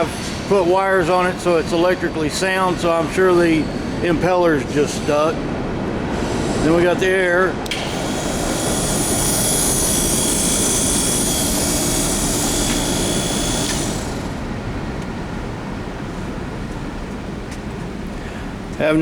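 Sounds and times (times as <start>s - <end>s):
passing train rumble: 0.0s - 19.0s
air pump hissing: 7.7s - 16.8s.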